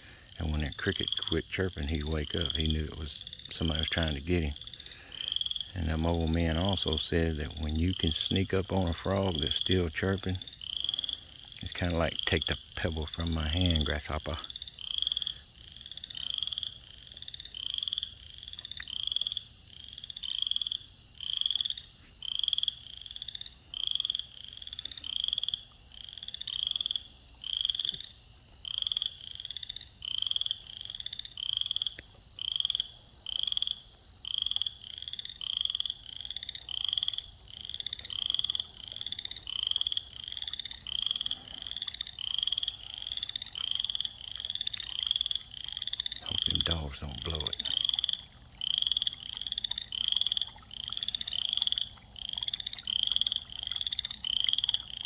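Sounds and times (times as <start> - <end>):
frogs calling: 0.0 - 55.0
insects droning: 0.0 - 55.0.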